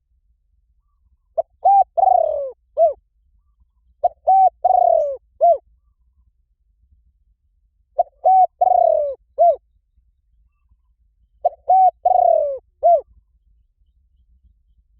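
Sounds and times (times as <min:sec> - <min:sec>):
dove cooing: 0:00.8 - 0:05.9, 0:08.0 - 0:09.6, 0:11.4 - 0:13.2.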